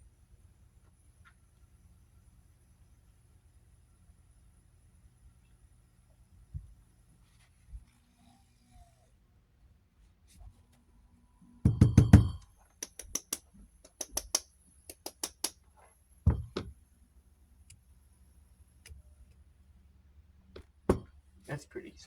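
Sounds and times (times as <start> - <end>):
sharp clicks: 12.8 - 15.6
heavy thumps: 16.3 - 16.7, 20.6 - 21.2
loud knocks of objects: 16.3 - 16.8, 20.6 - 21.2.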